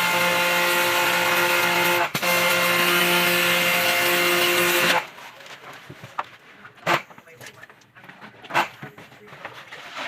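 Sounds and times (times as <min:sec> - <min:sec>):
electric motor whining: 0:00.0 - 0:05.1.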